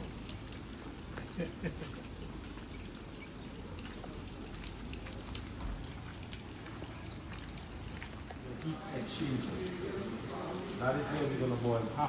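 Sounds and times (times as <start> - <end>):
fermenting juice fizzing: 0.0 - 12.0.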